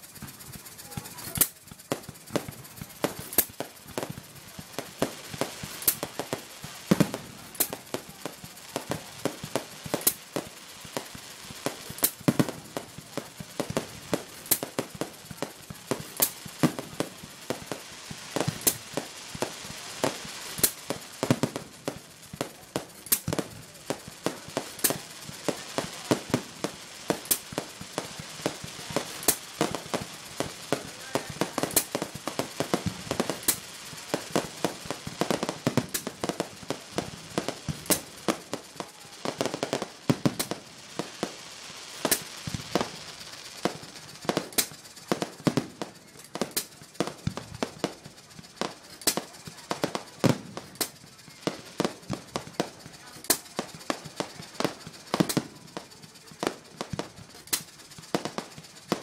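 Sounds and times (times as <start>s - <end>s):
firework shells bursting: 0.0s - 59.0s
fireworks crackling: 0.0s - 59.0s.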